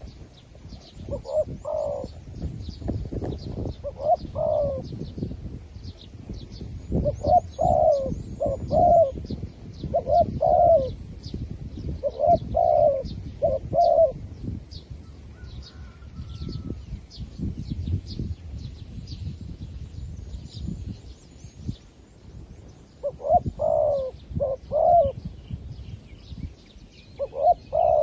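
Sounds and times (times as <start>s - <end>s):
small birds chirping: 0.0s - 28.0s
dove cooing: 0.8s - 2.2s, 3.6s - 5.1s, 7.0s - 11.0s, 12.0s - 14.3s, 23.0s - 25.2s, 27.2s - 28.0s.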